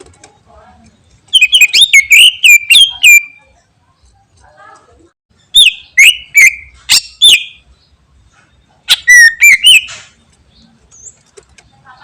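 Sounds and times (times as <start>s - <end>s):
bird singing whistled notes: 1.3s - 3.6s, 5.4s - 8.0s, 8.6s - 10.1s.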